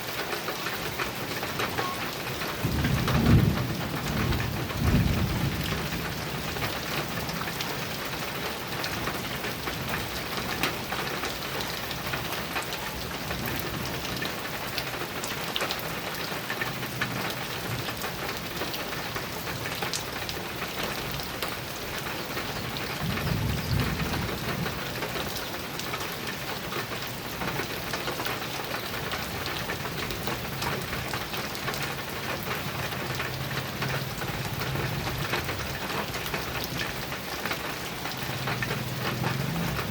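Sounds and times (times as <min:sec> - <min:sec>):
heavy rain on metal roof: 0:00.0 - 0:39.9
thunder rumbling: 0:01.7 - 0:07.6, 0:23.0 - 0:25.0, 0:38.3 - 0:39.9.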